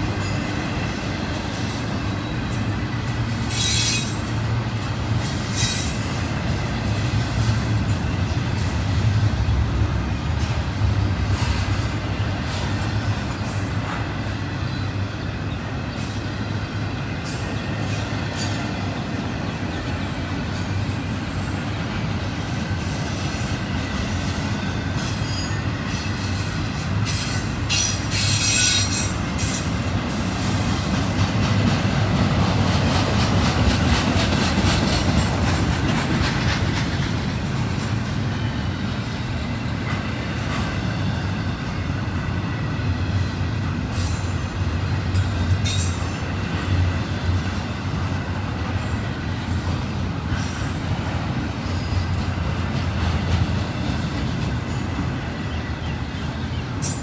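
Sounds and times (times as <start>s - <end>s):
steel wheels rumbling on rails: 0.0s - 57.0s
high-pitched wheel squeals: 3.5s - 4.8s.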